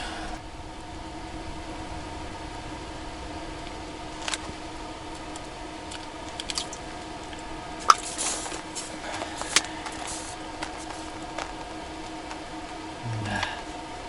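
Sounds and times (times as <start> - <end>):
steady hum: 0.0 - 14.0
short rustles: 7.8 - 12.5.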